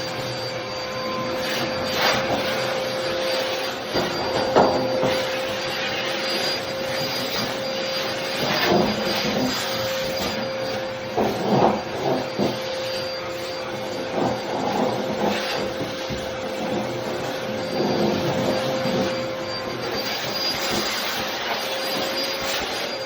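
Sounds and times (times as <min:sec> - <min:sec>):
vacuum cleaner running: 0:00.0 - 0:23.0
tool knocks and scrapes: 0:03.9 - 0:05.7, 0:08.3 - 0:10.4, 0:11.1 - 0:12.7.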